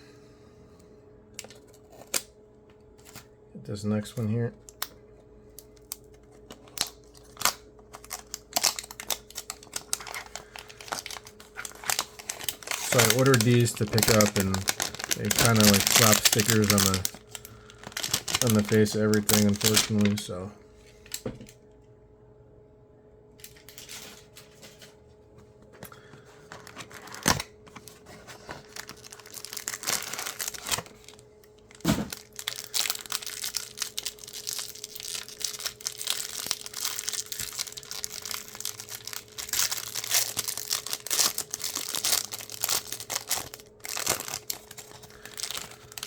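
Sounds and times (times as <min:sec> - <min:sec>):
packaging tearing and crinkling: 0:05.6 - 0:20.3, 0:26.0 - 0:46.0.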